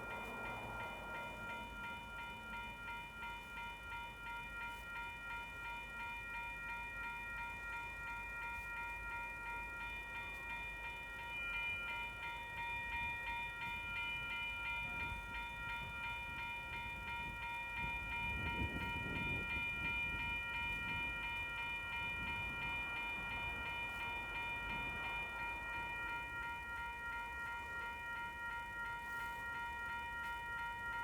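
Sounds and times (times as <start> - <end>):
train rumbling past: 0.0 - 4.6, 14.2 - 28.4
level-crossing bells ringing: 0.0 - 31.0.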